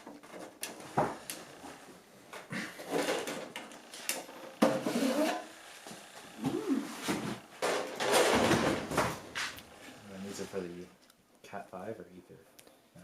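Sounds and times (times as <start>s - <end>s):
equipment scraping and rattling: 2.7s - 10.8s.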